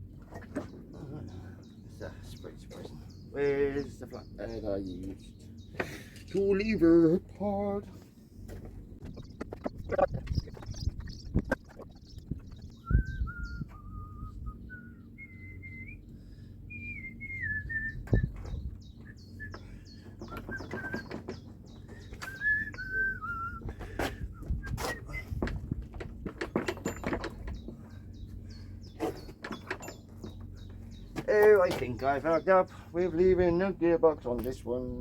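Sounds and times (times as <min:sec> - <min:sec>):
small birds chirping: 0:00.1 - 0:35.0
person whistling a tune: 0:12.8 - 0:16.0, 0:22.2 - 0:23.7
hand tools clanking on engine: 0:19.5 - 0:22.9, 0:23.7 - 0:32.2.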